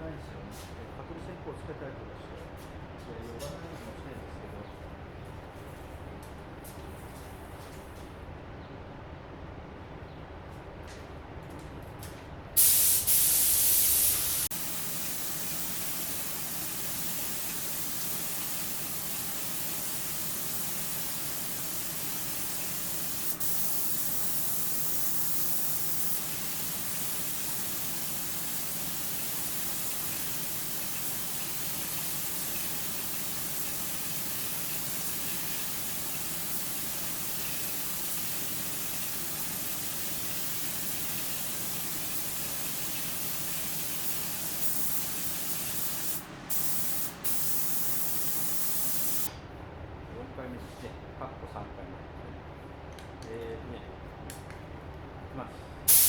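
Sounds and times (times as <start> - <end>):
paint spray gun hissing: 12.6 - 49.3.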